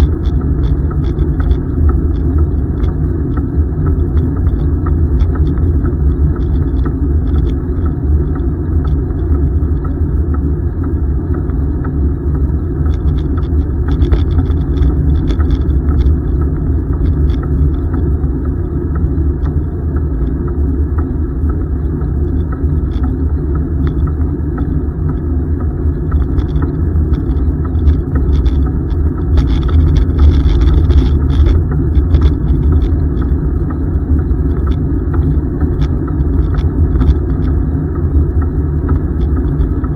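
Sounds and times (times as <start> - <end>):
wind buffeting microphone: 25.9 - 39.9.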